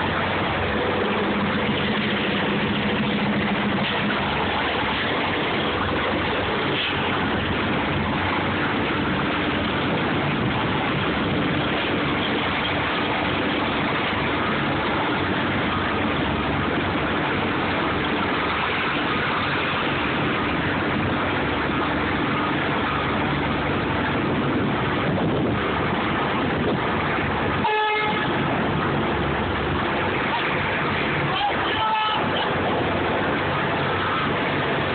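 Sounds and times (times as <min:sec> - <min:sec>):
truck engine running: 0:00.0 - 0:34.9
truck horn toot: 0:27.6 - 0:28.4, 0:31.3 - 0:32.6.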